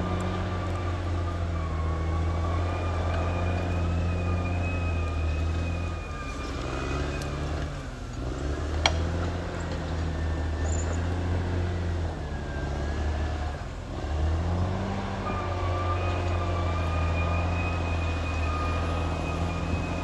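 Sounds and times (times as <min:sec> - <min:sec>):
bulldozer diesel engine: 0:00.0 - 0:20.0.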